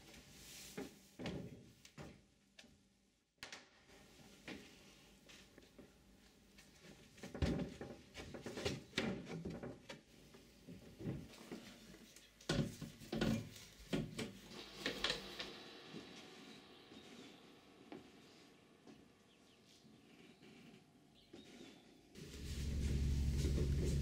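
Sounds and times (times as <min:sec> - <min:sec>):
wooden knocks and clatter: 0:07.2 - 0:10.0.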